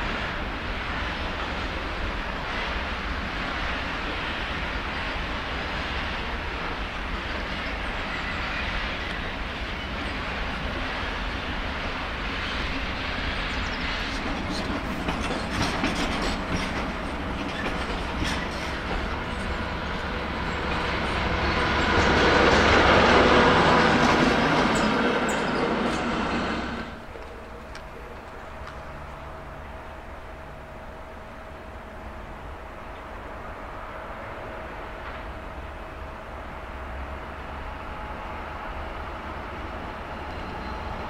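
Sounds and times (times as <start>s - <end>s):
freight wagons rumbling on tracks: 0.0s - 41.0s
wheels clicking over rail joints: 13.6s - 19.8s.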